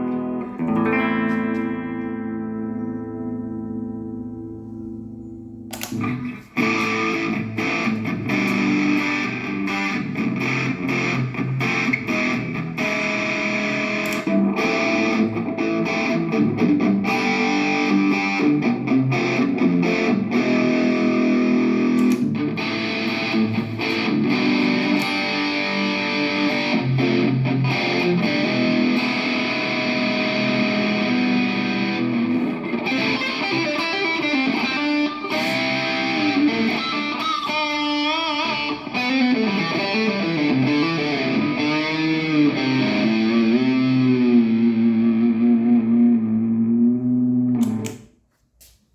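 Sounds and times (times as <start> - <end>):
distorted electric guitar playing: 0.0 - 48.1.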